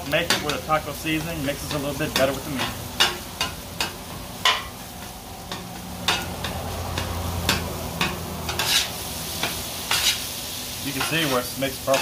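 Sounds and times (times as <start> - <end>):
meat sizzling on griddle: 0.0 - 12.0
metal spatula scraping griddle: 5.5 - 12.0.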